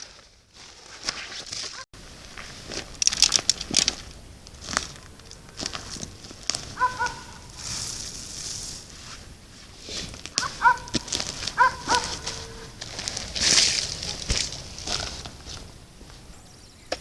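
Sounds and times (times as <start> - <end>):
clicks and rustling: 1.0 - 8.1
short clear bird calls: 6.8 - 7.6.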